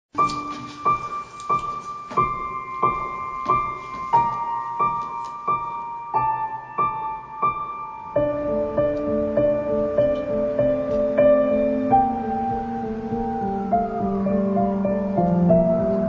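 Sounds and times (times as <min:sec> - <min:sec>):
gentle piano music: 0:00.1 - 0:16.0.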